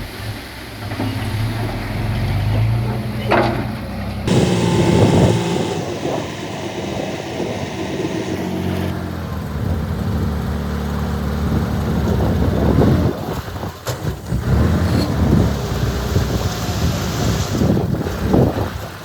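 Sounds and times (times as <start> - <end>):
heavy diesel engine running: 4.0 - 13.0
hiss: 4.3 - 8.9.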